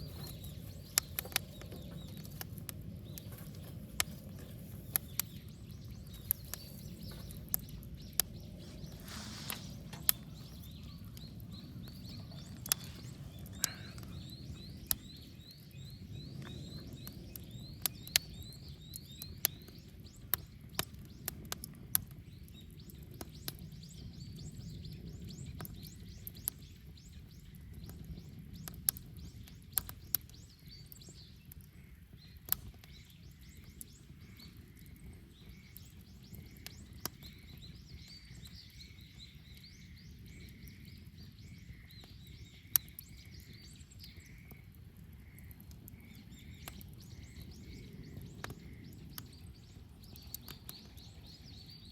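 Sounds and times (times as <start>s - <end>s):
bird chirping: 0.0s - 21.4s, 22.2s - 51.9s
low steady fire rush: 0.0s - 22.2s
bonfire crackling and popping: 0.0s - 51.9s.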